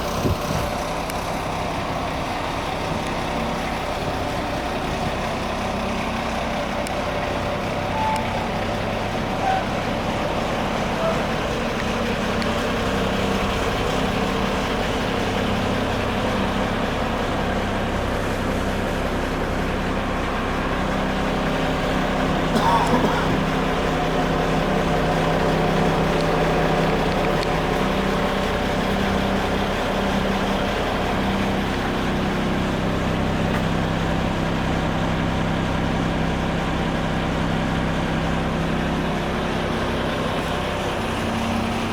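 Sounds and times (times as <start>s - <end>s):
diesel truck engine idling: 0.0s - 41.9s.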